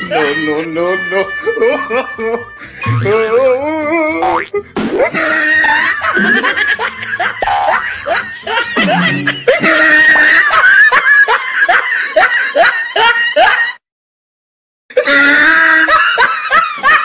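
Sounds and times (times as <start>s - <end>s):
music: 0.0s - 3.8s
high-pitched snickering laughter: 4.3s - 13.6s.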